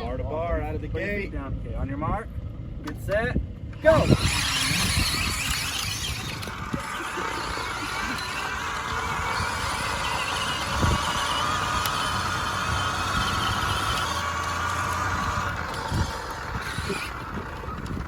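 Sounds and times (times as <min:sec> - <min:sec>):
electric motors whining: 0:03.8 - 0:18.0
tyres rumbling over ground: 0:03.8 - 0:18.0.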